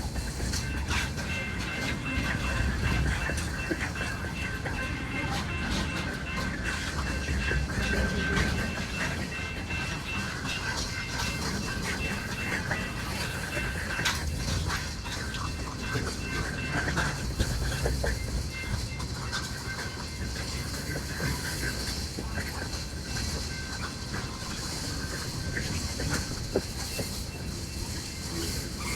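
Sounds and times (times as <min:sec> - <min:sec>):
freight train wheels clicking: 0:00.0 - 0:28.9
train rumble: 0:00.0 - 0:28.9.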